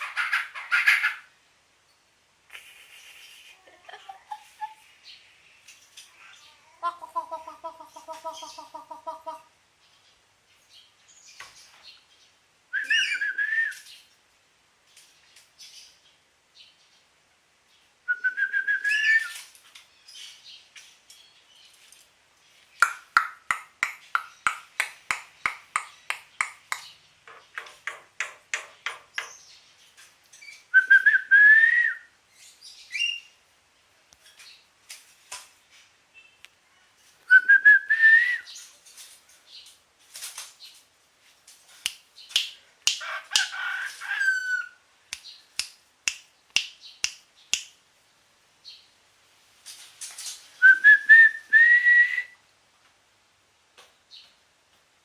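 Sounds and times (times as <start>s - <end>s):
starling whistled phrases: 12.7s - 13.9s, 18.1s - 19.4s, 30.7s - 32.1s, 37.3s - 38.6s, 50.6s - 52.4s
starling clicking and chattering: 22.8s - 29.4s.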